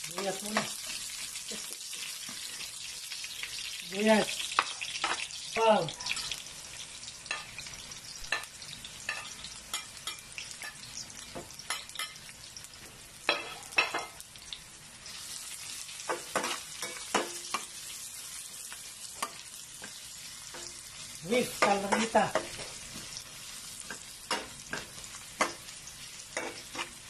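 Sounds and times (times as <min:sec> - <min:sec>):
onions sizzling in oil: 0:00.0 - 0:27.0
spoon clinking and scraping pan: 0:04.5 - 0:05.3, 0:07.3 - 0:07.6, 0:08.3 - 0:12.3, 0:13.3 - 0:14.2, 0:16.1 - 0:17.8, 0:19.2 - 0:27.0.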